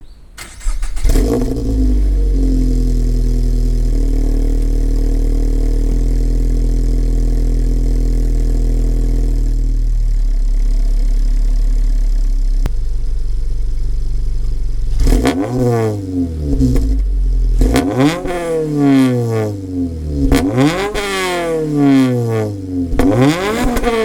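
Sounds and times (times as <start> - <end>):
car engine starting and idling: 0.4 - 24.0.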